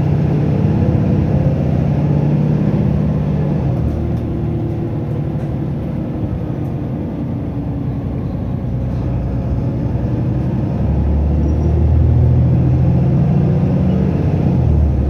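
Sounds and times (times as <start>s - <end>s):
bus diesel engine under load: 0.0s - 15.0s.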